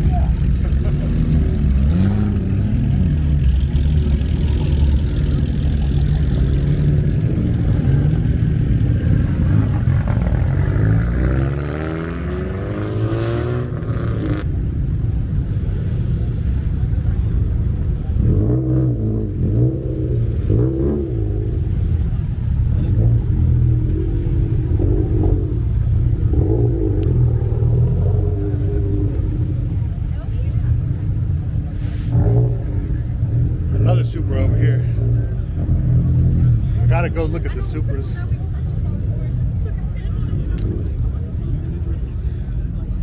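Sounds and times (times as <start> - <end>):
car engines revving: 0.0 - 43.0
steady low rumble: 14.4 - 43.0.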